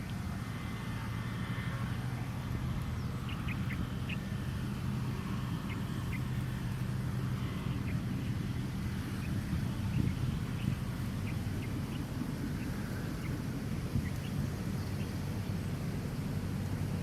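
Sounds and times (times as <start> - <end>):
steady low hum: 0.0 - 17.0
sparrow chicks chirping: 2.3 - 17.0.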